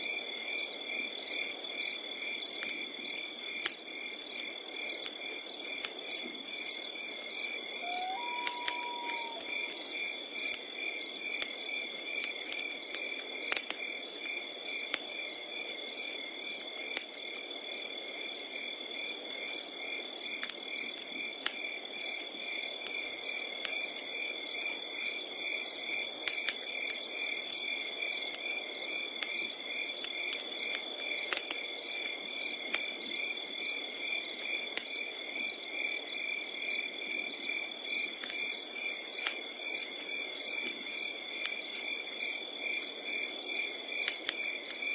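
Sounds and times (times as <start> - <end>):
crickets chirping: 0.0 - 44.9
wood fire crackling: 0.0 - 44.9
high insect trill: 5.5 - 10.2, 22.5 - 28.2, 35.5 - 44.8.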